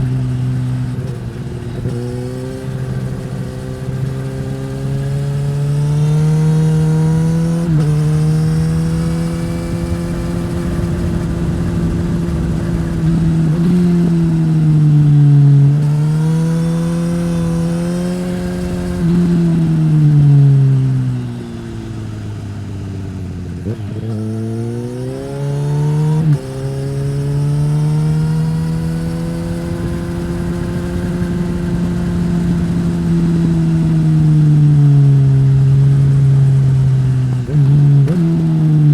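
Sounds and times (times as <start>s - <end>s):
motorcycle engine revving while riding: 0.0s - 38.9s.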